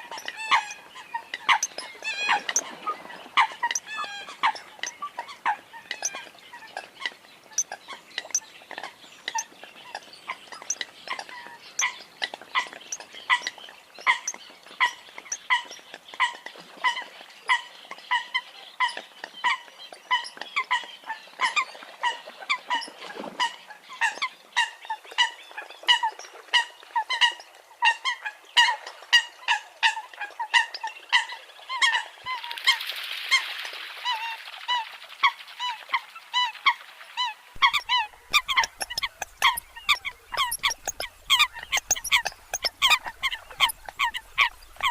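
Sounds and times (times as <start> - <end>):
coots calling: 0.0 - 12.0, 37.6 - 44.9.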